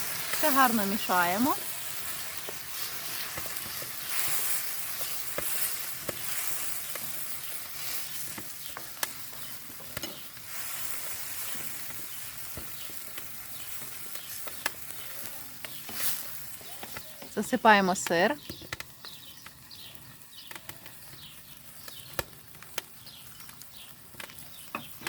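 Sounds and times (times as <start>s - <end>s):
food sizzling in hot oil: 0.0s - 25.0s
spatula tapping a pan: 2.4s - 10.3s.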